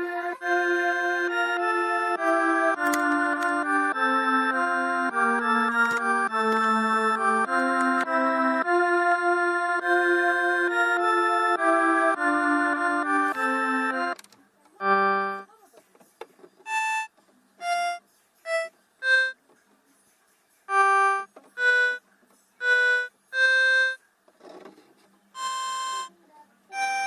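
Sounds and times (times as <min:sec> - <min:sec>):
electronic keyboard chord: 0:00.0 - 0:14.2, 0:14.8 - 0:15.5, 0:16.7 - 0:19.4, 0:20.7 - 0:22.0, 0:22.6 - 0:24.0, 0:25.4 - 0:26.1, 0:26.7 - 0:27.0
single keyboard notes: 0:00.0 - 0:14.2, 0:14.8 - 0:15.5.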